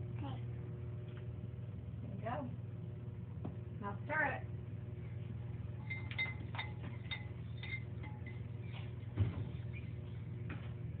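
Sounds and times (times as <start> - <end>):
fork clinking against bowl: 5.8 - 8.5.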